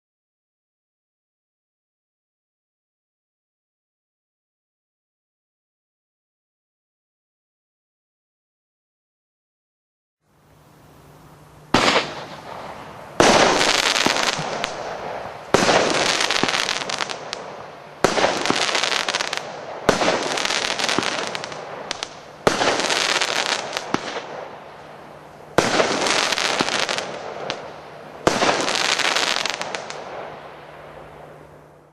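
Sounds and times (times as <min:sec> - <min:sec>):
firework crackling: 0:10.3 - 0:31.9
firework hissing: 0:11.0 - 0:31.9
loud firework bangs: 0:11.7 - 0:31.4.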